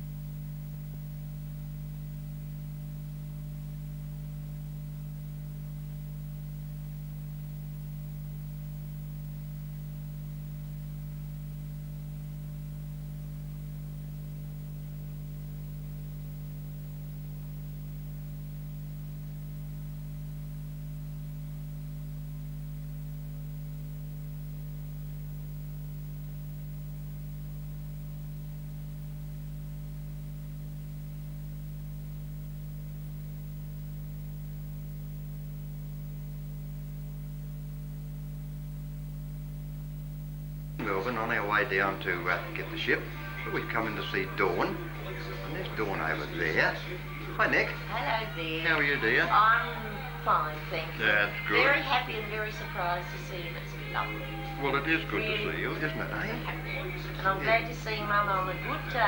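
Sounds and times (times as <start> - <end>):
low electrical hum: 0.0 - 59.0
faint hiss: 40.7 - 59.0.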